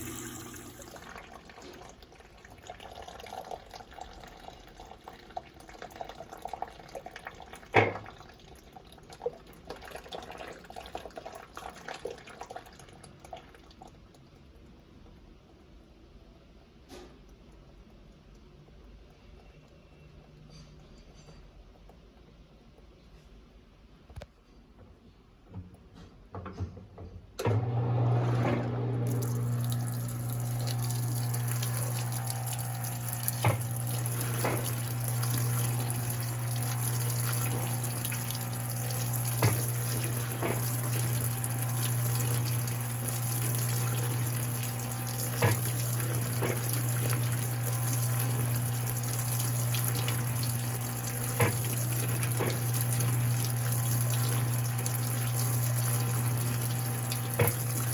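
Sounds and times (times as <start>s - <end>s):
water rushing into washing machine: 0.0s - 14.0s, 27.4s - 57.9s
constant machine hum: 28.2s - 57.9s.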